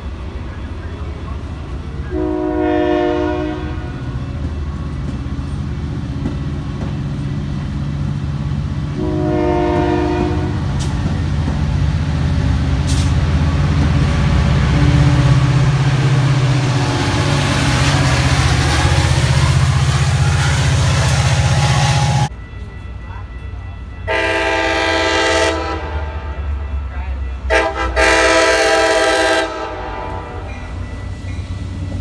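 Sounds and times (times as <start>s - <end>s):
diesel locomotive engine droning: 0.0s - 32.0s
train wheels rushing on rails: 0.0s - 32.0s
train horn blast: 2.0s - 4.4s, 8.9s - 10.9s, 14.6s - 22.3s, 24.1s - 26.7s, 27.5s - 30.8s.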